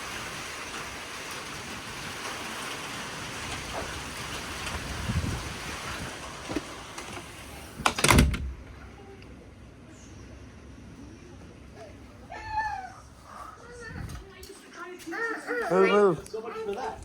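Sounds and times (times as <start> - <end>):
wind and rain: 0.0 - 10.8, 11.6 - 17.0
door banging shut: 6.4 - 8.8.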